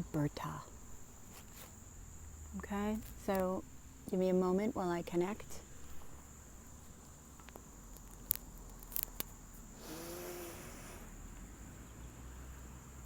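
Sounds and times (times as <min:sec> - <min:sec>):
high-pitched insect drone: 0:09.8 - 0:11.4.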